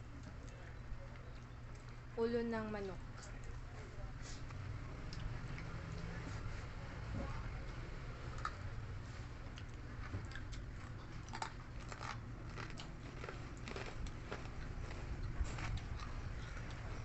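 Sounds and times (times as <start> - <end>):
low steady hum: 0.0 - 17.0
crunchy chewing: 9.2 - 17.0.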